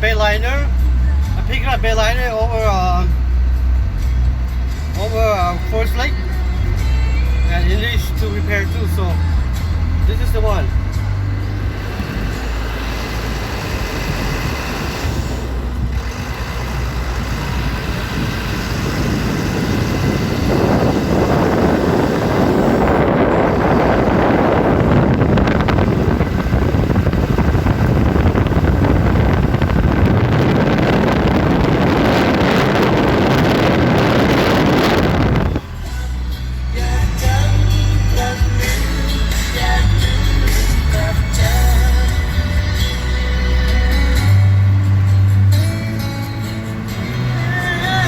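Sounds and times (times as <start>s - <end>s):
low engine rumble: 0.0s - 48.0s
wind buffeting microphone: 7.8s - 37.6s.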